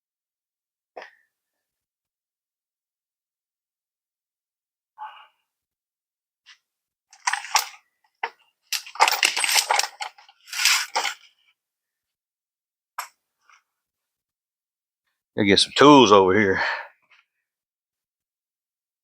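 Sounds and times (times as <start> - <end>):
metal hand tools clinking: 7.2 - 7.8, 8.7 - 11.2.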